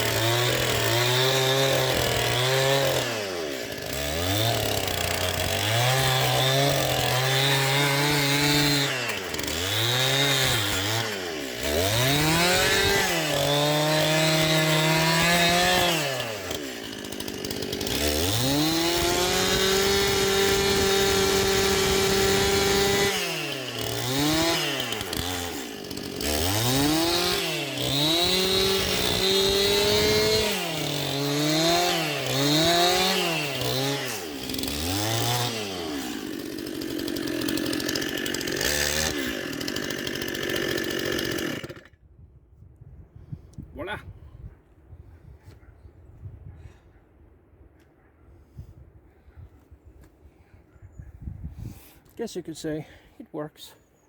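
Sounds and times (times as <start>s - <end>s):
chainsaw revving: 0.0s - 42.0s.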